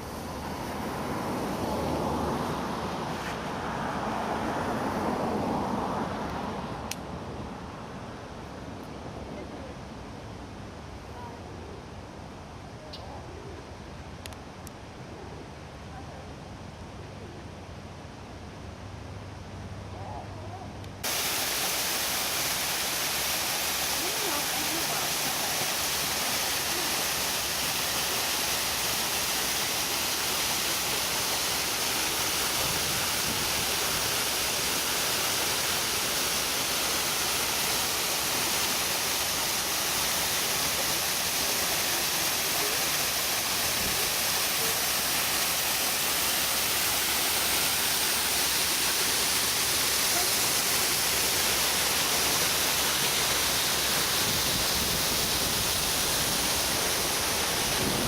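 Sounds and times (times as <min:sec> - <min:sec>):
waterfall rushing: 0:00.0 - 0:05.8, 0:21.0 - 0:58.0.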